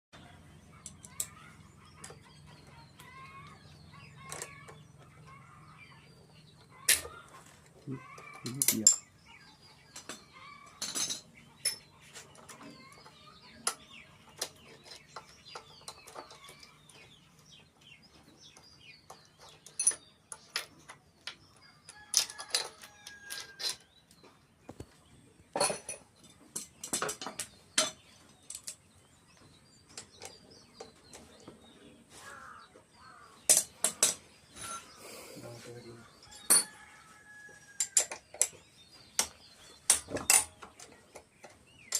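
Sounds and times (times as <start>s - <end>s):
hand tools clicking on metal: 8.0s - 9.0s
metal clanks: 25.5s - 28.8s.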